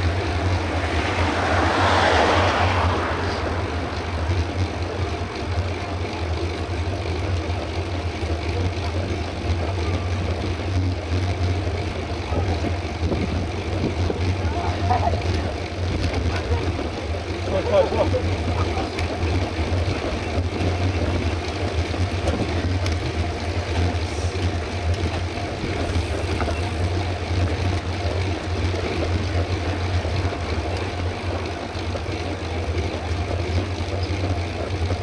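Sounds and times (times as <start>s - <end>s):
tyre and road noise: 0.0s - 35.0s
wind rush over microphone: 12.3s - 15.2s.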